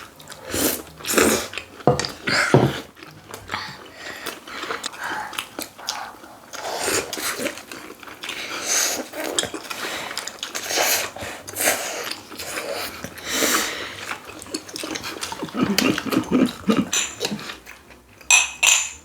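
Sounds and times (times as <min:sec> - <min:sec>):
people chewing and biting: 0:00.0 - 0:18.4
cutlery clicking against dishes: 0:16.8 - 0:17.4, 0:18.2 - 0:19.0.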